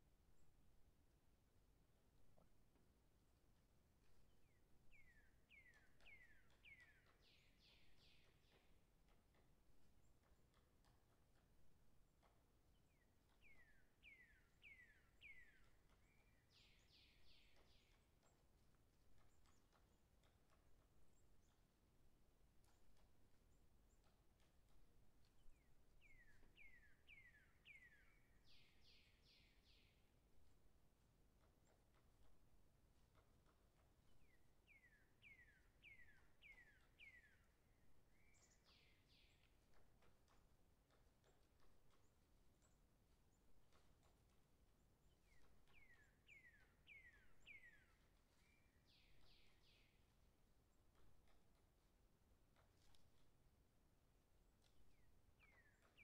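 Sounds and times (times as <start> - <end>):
faint light clicks: 4.0 - 56.0
bird whistling and chirping: 45.3 - 49.8.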